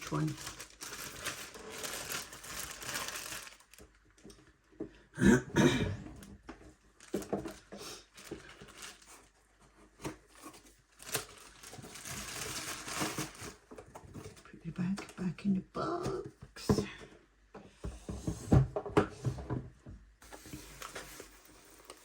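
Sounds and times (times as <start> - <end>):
plastic packaging crinkling: 0.0 - 4.4, 7.0 - 9.4, 10.0 - 14.3, 20.2 - 22.0.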